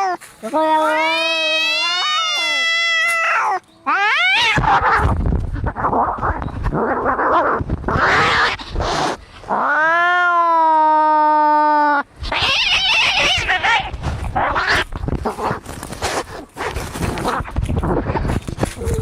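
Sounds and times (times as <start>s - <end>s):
cats hissing: 0.0s - 10.3s, 12.2s - 19.0s
cats yowling: 0.0s - 15.6s.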